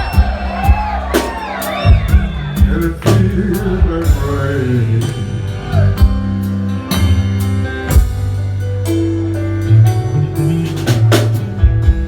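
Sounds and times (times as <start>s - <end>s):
blues band playing: 0.0s - 12.0s.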